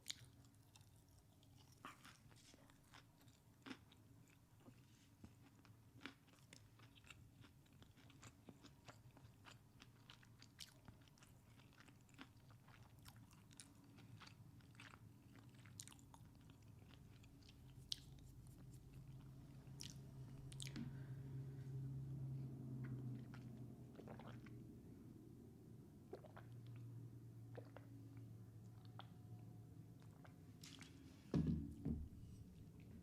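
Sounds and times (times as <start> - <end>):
chewing and crunching: 0.0 - 21.1, 22.8 - 24.6
low hum: 18.9 - 23.9.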